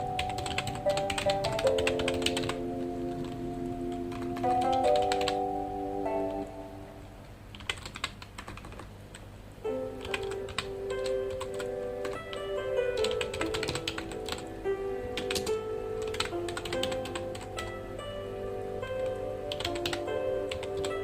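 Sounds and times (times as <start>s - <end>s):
computer keyboard typing: 0.0s - 5.5s, 7.5s - 9.3s, 9.9s - 14.5s, 15.2s - 17.8s, 19.0s - 21.0s
soft background music: 0.0s - 7.8s, 9.4s - 21.0s.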